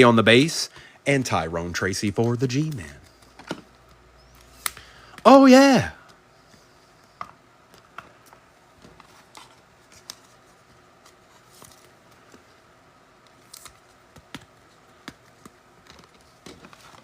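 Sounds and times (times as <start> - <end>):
trading cards being flipped: 13.2 - 17.0.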